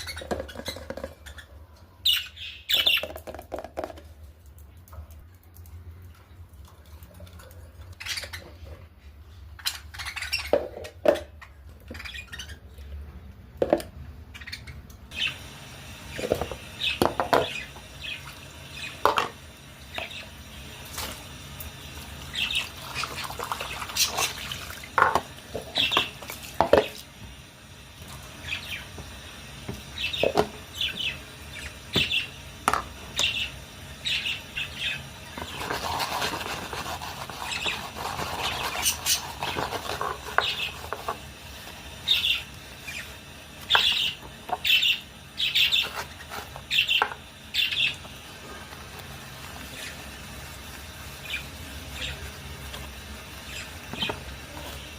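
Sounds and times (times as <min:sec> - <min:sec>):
budgerigars chirping: 0:00.0 - 0:03.1, 0:09.6 - 0:10.7, 0:11.3 - 0:12.7, 0:14.3 - 0:15.5, 0:25.7 - 0:26.2, 0:30.0 - 0:32.4, 0:33.2 - 0:36.3, 0:37.4 - 0:41.0, 0:42.1 - 0:43.1, 0:43.7 - 0:48.0, 0:53.4 - 0:54.1.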